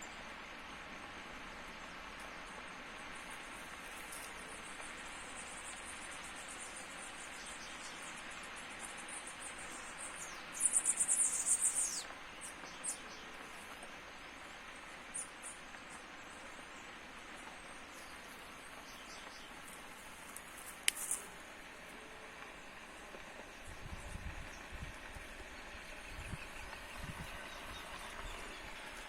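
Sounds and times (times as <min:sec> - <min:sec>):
outdoor hiss: 0:00.0 - 0:29.0
faint clicks: 0:18.7 - 0:21.3.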